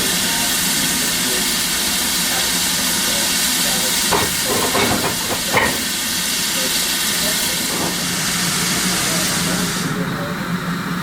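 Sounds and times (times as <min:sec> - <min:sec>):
steam locomotive hissing: 0:00.0 - 0:11.0.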